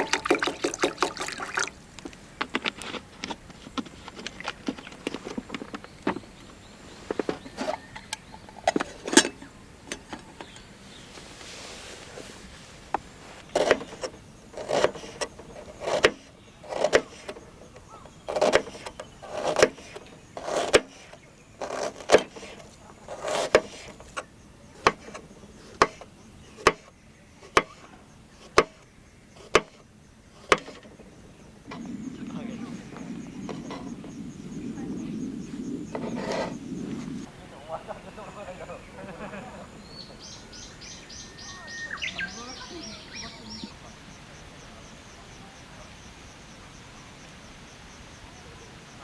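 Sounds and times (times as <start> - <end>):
knocking thuds and clicks: 28.5 - 28.8, 29.4 - 29.8.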